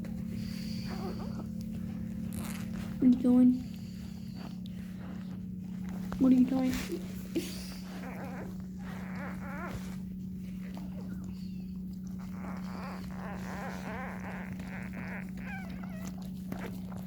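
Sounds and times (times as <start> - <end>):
steady low hum: 0.0 - 17.0
puppies squeaking and whimpering: 0.4 - 3.0, 7.4 - 17.0.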